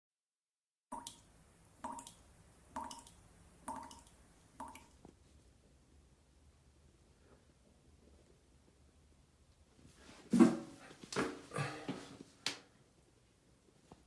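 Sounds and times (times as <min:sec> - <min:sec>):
water dripping from shower: 0:02.8 - 0:05.0.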